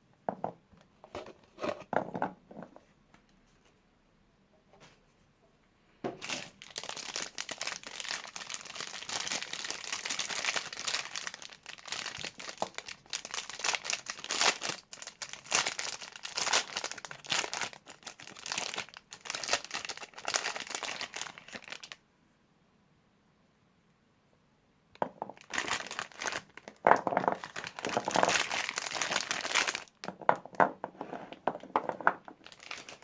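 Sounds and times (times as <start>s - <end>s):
soap wrapper crinkling: 6.2s - 22.0s, 25.0s - 33.0s.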